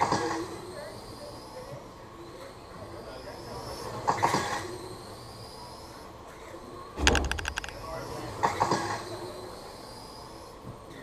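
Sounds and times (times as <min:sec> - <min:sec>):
sharp rattling clatter: 0:07.0 - 0:07.9.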